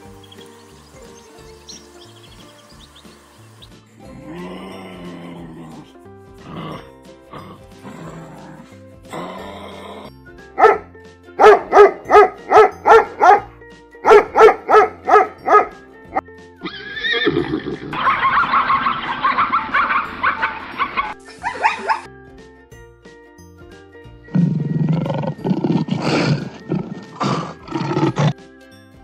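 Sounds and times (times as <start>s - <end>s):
background music: 0.0s - 29.0s
dog barking: 10.6s - 15.8s, 21.4s - 22.1s.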